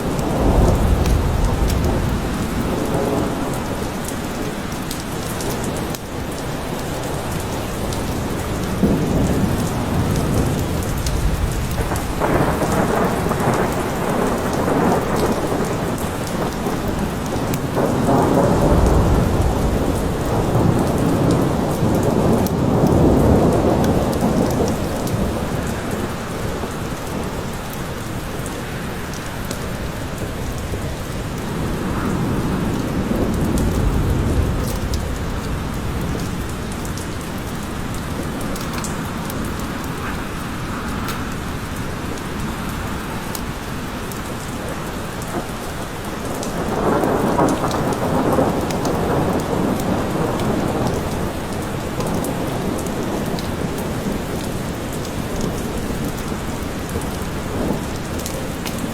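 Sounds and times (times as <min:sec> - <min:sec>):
low rolling thunder: 0:00.0 - 0:05.9, 0:06.8 - 0:28.5, 0:29.7 - 0:58.9
steady rain falling: 0:00.0 - 0:58.9.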